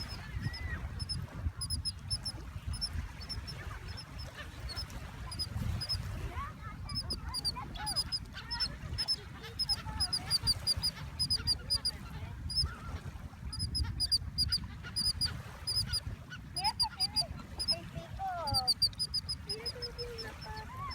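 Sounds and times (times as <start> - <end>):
low sliding squawks: 0.0 - 6.0, 6.9 - 12.8, 18.4 - 20.9
small birds chirping: 0.0 - 12.8, 13.5 - 20.9.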